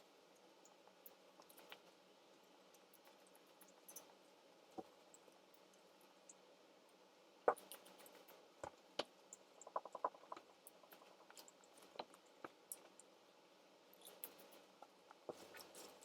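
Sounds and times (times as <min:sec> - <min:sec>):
chewing and handling food clicks: 0:00.4 - 0:06.4, 0:07.5 - 0:13.2.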